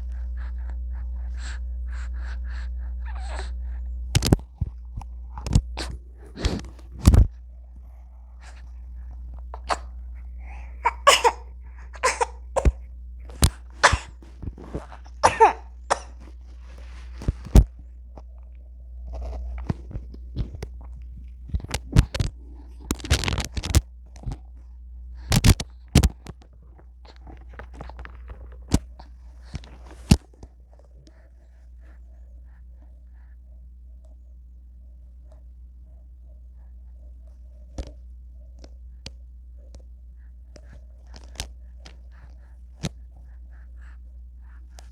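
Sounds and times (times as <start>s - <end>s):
low steady hum: 0.0s - 44.9s
infant coughing and sneezing: 9.6s - 14.2s, 14.8s - 16.3s.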